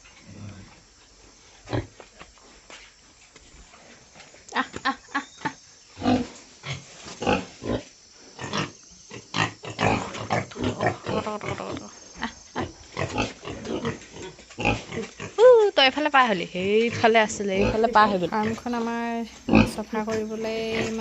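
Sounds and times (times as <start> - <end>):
pigs grunting: 6.0 - 15.4, 16.8 - 21.0.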